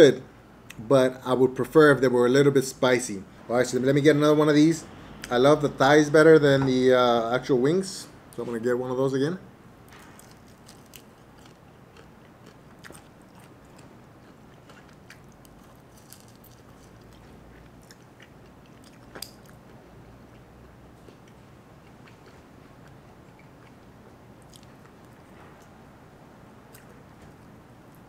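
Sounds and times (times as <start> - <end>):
faint chewing and crunching: 9.9 - 25.8, 26.7 - 28.0.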